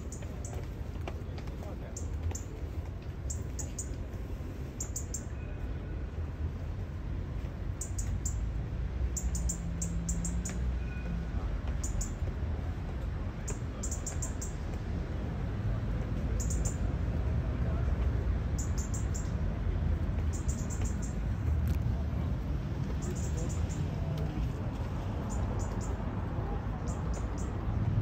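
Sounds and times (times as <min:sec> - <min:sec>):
low city rumble: 0:00.0 - 0:28.0
small bird chirping: 0:09.2 - 0:10.6, 0:13.8 - 0:14.6, 0:20.3 - 0:21.2.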